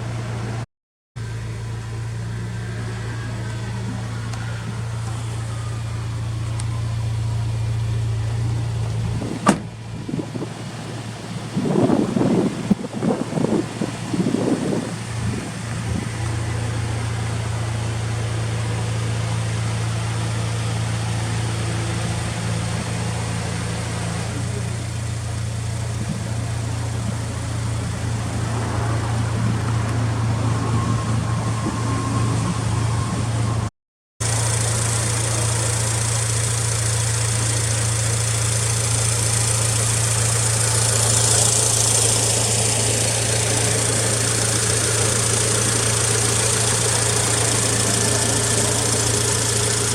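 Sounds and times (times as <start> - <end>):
car engine idling: 1.2 - 49.9.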